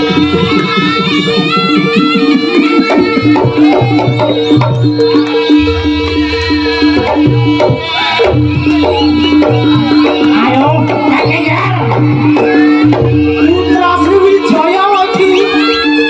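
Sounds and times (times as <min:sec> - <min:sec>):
drums: 0:00.0 - 0:16.0
high pitch-bending melody: 0:00.0 - 0:16.0.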